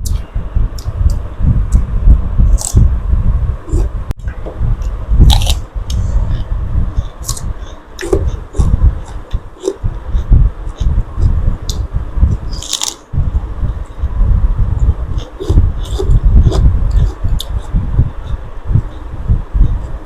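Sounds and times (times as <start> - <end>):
person biting and crunching food: 2.4 - 2.9, 4.8 - 6.0, 12.5 - 13.1, 15.1 - 17.6.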